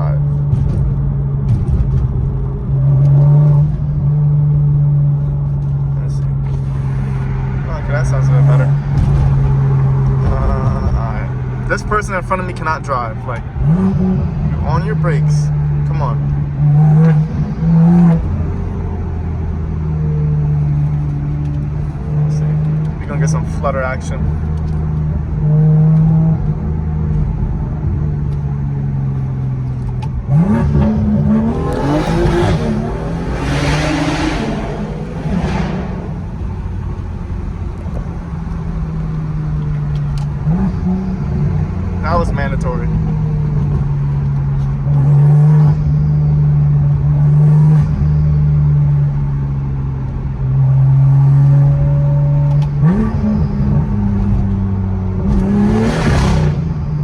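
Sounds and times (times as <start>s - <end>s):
car engine droning: 0.0s - 57.0s
car engine revving: 29.0s - 48.6s, 50.9s - 57.0s.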